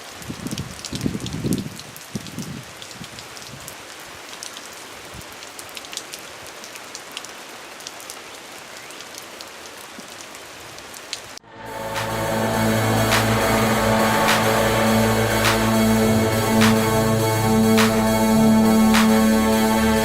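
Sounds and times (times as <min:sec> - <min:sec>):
raindrops ticking close by: 0:00.0 - 0:11.4
steady rain: 0:00.0 - 0:20.0.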